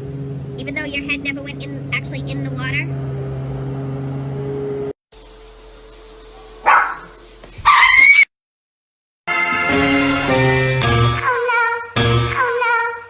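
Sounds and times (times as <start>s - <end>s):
dog barking: 6.3s - 8.2s.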